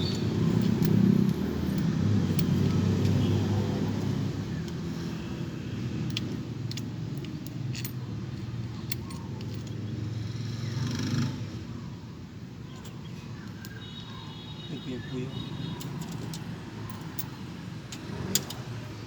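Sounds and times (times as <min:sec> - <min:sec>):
metallic clinks of tools: 0:00.0 - 0:04.2, 0:15.6 - 0:19.0
vehicle passing: 0:00.0 - 0:06.1
highway traffic rumble: 0:00.0 - 0:19.0.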